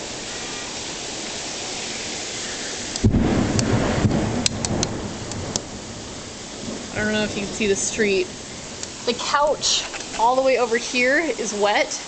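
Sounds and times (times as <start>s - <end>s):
heavy rain pouring: 0.0s - 12.0s
thunderclap rumbling: 3.0s - 10.8s.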